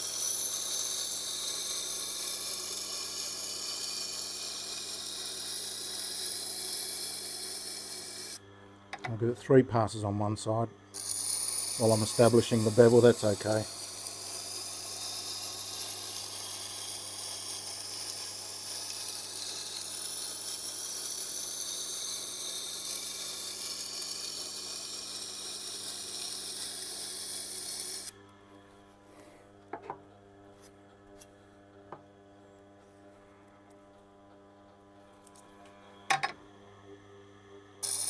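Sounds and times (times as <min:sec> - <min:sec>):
knife grinding on sharpening wheel: 0:00.0 - 0:08.4, 0:10.9 - 0:28.1.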